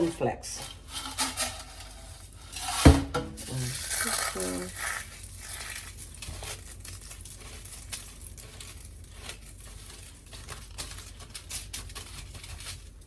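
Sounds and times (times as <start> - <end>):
cornflakes and breadcrumbs crackling: 3.4 - 13.0.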